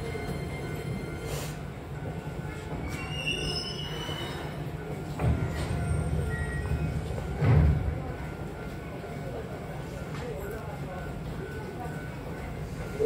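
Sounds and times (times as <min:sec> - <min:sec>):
train wheels rumbling on track: 0:00.0 - 0:10.2
high wheel squeal: 0:02.8 - 0:04.6.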